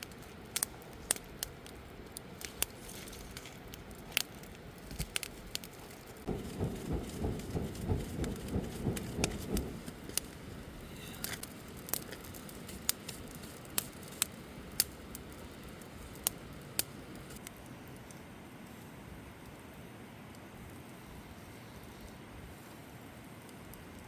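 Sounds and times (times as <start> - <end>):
campfire crackling and popping: 0.0 - 24.0
low thumps and rustling: 6.2 - 11.5.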